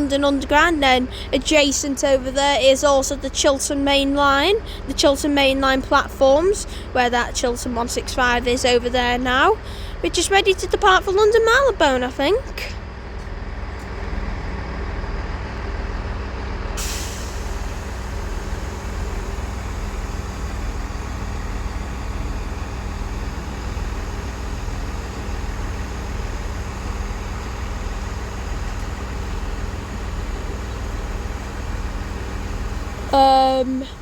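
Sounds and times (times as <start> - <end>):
diesel engines idling: 0.0 - 34.0
steady hiss of air: 16.8 - 29.2.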